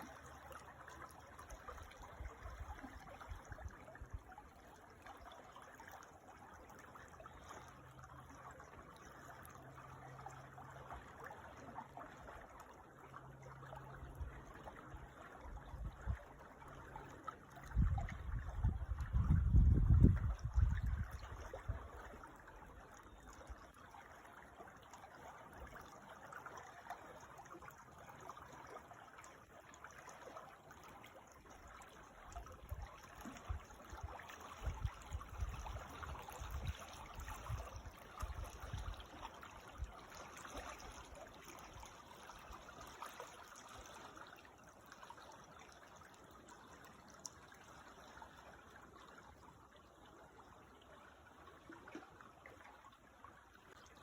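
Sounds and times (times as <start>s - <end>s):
creek water trickling: 0.0s - 54.0s
wind buffeting microphone: 17.7s - 21.3s, 34.6s - 39.0s.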